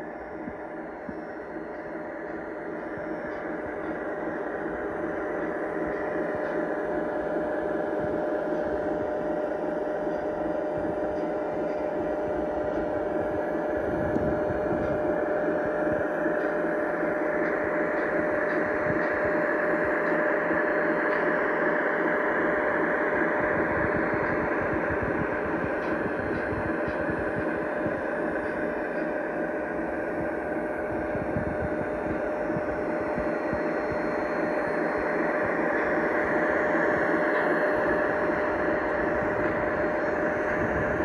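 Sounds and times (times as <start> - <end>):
diesel engine through small speaker: 9.9 - 41.0.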